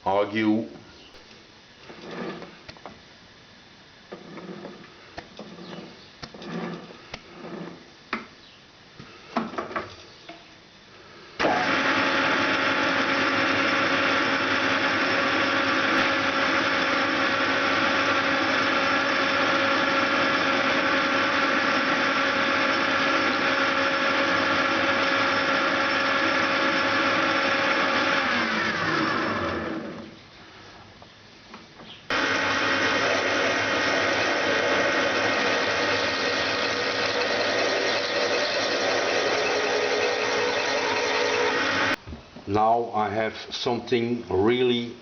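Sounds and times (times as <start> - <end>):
metal lathe running: 11.4 - 28.7, 32.1 - 42.0.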